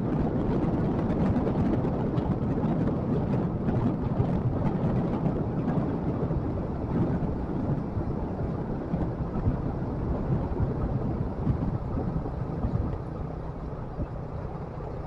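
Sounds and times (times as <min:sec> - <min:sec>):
motorcycle engine rumble: 0:00.0 - 0:15.0
wind buffeting microphone: 0:00.0 - 0:15.0.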